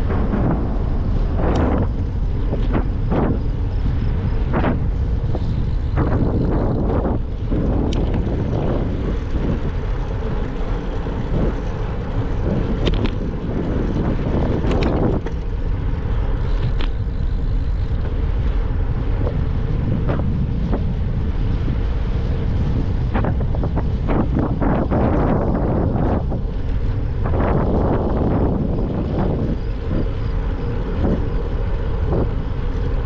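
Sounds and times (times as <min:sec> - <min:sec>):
sharp bicycle clicks: 0:00.0 - 0:03.6, 0:04.4 - 0:20.8
wind rushing over microphone: 0:00.0 - 0:33.0.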